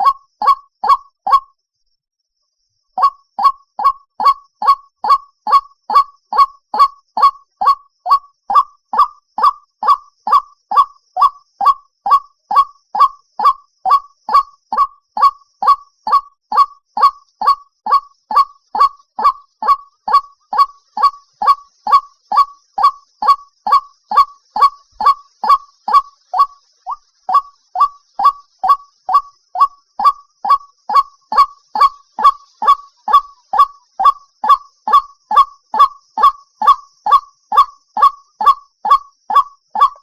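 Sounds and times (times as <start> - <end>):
waterhen calling: 0.0 - 1.4, 3.0 - 40.0.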